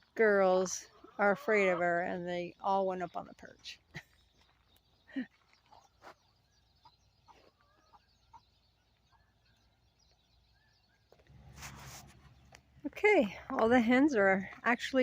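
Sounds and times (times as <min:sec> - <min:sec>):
hens clucking: 0:06.8 - 0:08.6.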